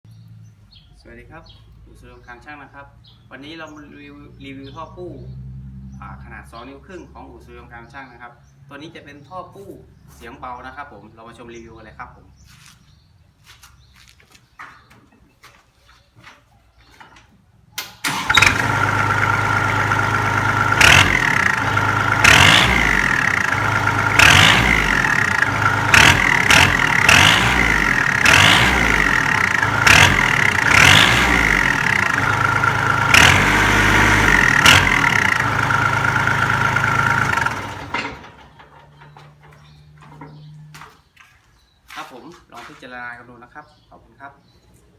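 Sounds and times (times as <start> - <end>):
tractor diesel engine idling: 18.0 - 38.9.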